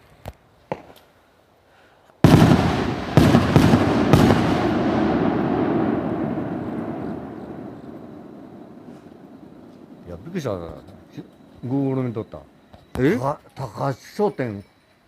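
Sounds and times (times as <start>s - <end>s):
rumbling echo: 2.2s - 11.6s
fireworks bangs: 2.2s - 13.3s.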